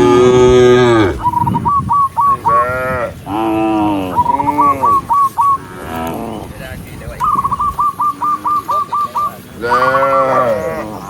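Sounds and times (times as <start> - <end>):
cows mooing: 0.0 - 1.3, 2.4 - 6.6, 9.6 - 11.0.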